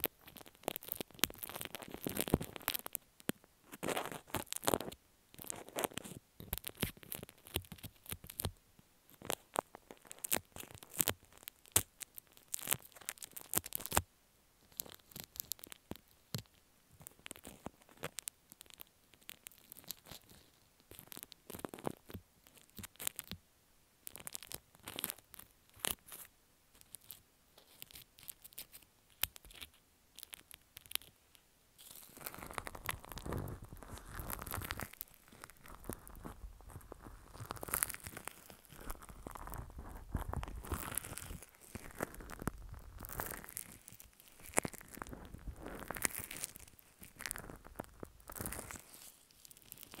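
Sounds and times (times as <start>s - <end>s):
slime squishing: 31.8s - 50.0s.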